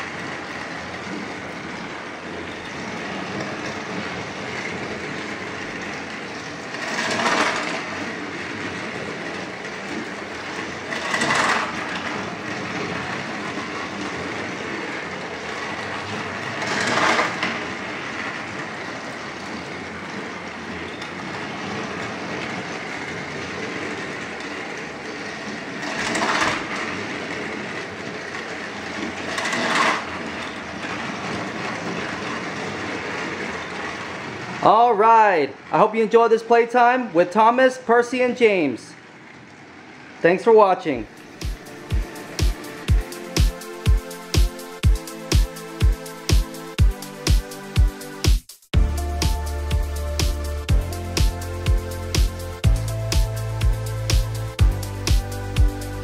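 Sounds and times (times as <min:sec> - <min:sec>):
toy train motor whir: 0:00.0 - 0:34.8, 0:41.1 - 0:48.2
toy train wheel rattle: 0:00.0 - 0:35.1.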